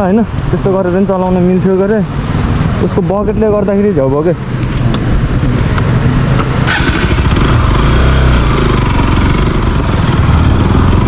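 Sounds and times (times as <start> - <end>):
wind rushing on microphone: 0.0 - 7.7
motorcycle engine running: 6.5 - 11.0.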